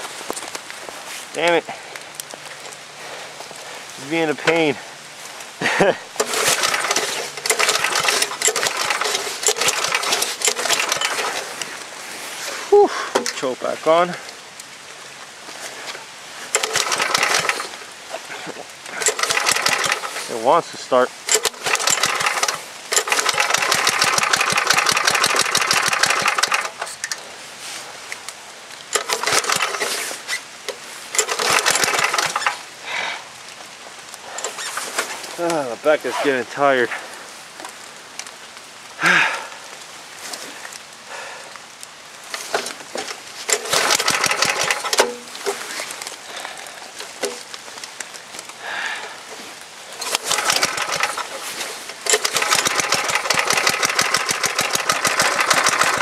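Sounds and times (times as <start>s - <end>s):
engine cranked by pull starter: 5.8s - 11.7s, 16.5s - 17.8s, 18.9s - 20.4s, 21.3s - 27.2s, 28.9s - 30.3s, 31.1s - 32.6s, 34.4s - 35.6s, 42.3s - 45.8s, 47.2s - 47.4s, 50.0s - 56.0s.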